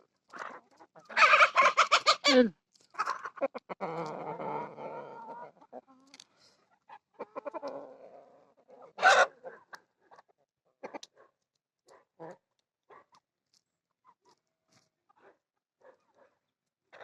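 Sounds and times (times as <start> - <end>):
chickens clucking: 0.3 - 11.1.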